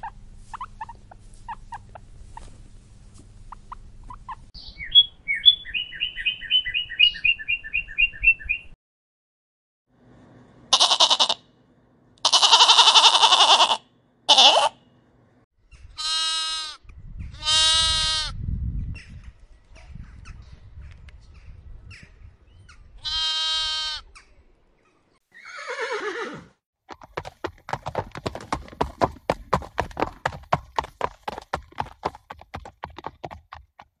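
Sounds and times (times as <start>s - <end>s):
lamb bleating: 10.7s - 11.4s, 12.2s - 14.8s, 16.0s - 16.8s, 17.4s - 18.3s, 23.0s - 24.1s
horse whinnying: 25.3s - 26.6s
hoofbeats clip-clopping: 26.9s - 34.0s.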